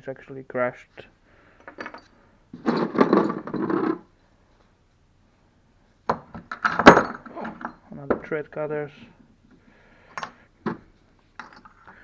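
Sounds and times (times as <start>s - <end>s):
drill bits clinking and rattling: 1.6s - 4.1s, 6.5s - 7.8s.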